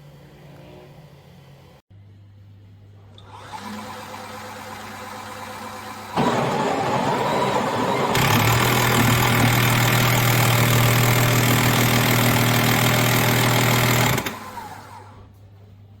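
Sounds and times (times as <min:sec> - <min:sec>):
espresso machine running: 0:03.3 - 0:15.1.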